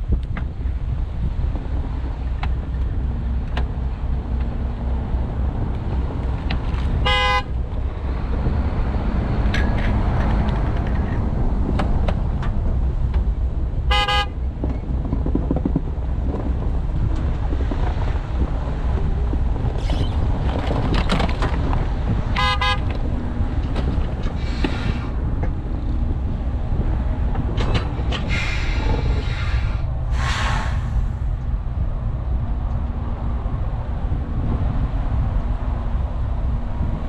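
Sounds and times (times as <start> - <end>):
engine rumble: 0.0 - 37.0
wind: 0.0 - 37.0
vehicle horn honks: 7.0 - 7.5, 13.9 - 14.4, 22.4 - 22.9.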